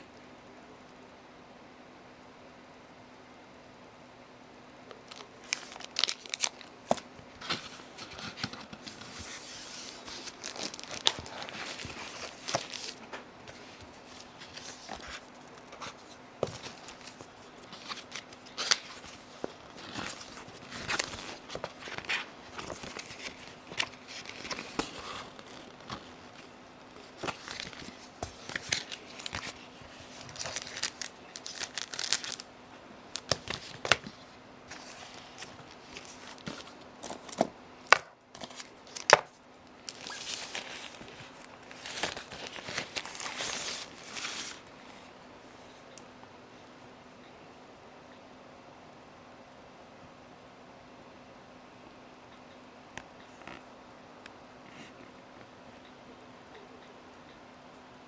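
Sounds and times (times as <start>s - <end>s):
faint steady hum: 0.0s - 58.0s
packaging rustling and crinkling: 5.0s - 32.5s, 33.1s - 44.7s.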